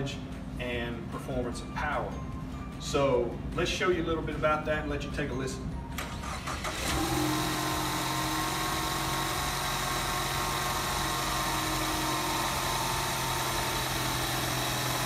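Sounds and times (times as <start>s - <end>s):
car engine idling: 6.2s - 15.0s.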